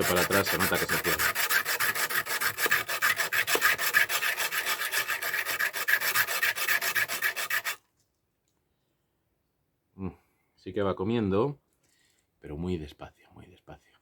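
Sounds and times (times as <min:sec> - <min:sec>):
metal file rasping on sharpening stone: 0:00.0 - 0:07.8.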